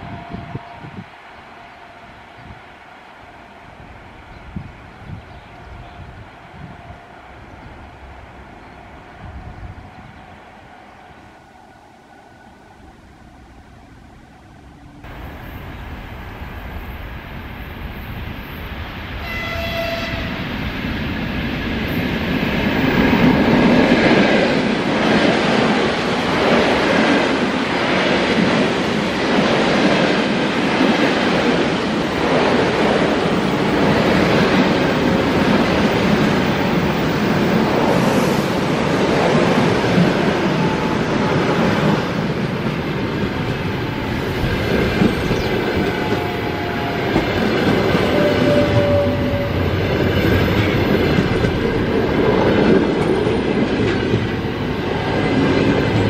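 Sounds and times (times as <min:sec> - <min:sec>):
train horn blast: 0:19.2 - 0:20.5, 0:45.8 - 0:49.8.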